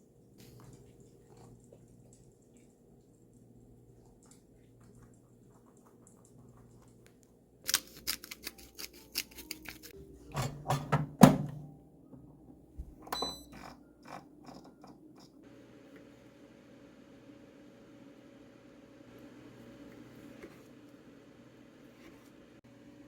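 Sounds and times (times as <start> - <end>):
objects clicking and knocking: 7.7 - 11.0.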